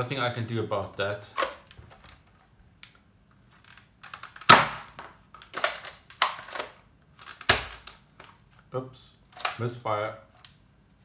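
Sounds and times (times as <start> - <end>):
dart blaster shot: 4.5 - 4.9.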